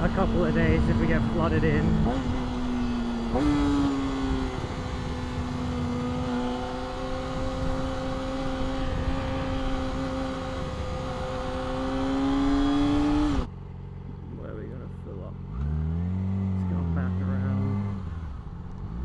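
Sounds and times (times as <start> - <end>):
wind rush: 0.0 - 13.5
motorcycle engine at high revs: 0.0 - 19.0.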